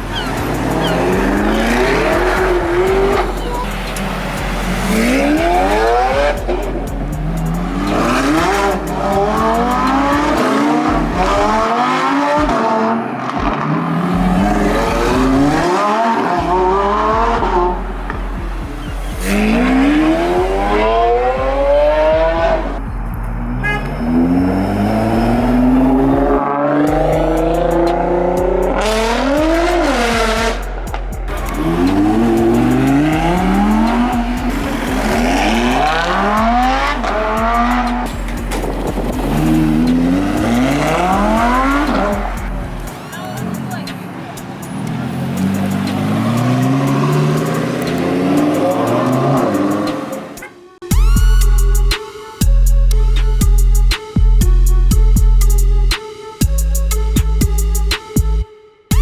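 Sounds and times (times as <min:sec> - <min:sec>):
sports car engines revving: 0:00.0 - 0:52.0.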